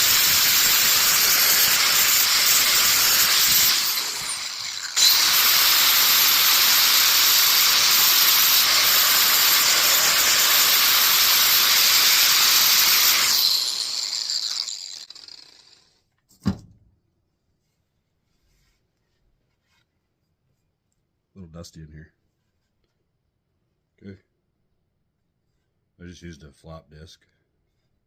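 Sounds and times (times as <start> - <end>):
angle grinder grinding metal: 0.0 - 15.9
grinder spinning down: 0.0 - 16.0.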